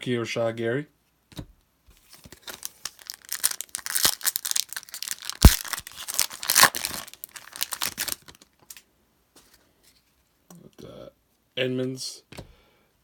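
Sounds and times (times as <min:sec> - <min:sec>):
foil wrapper crinkling and tearing: 0:02.2 - 0:08.5.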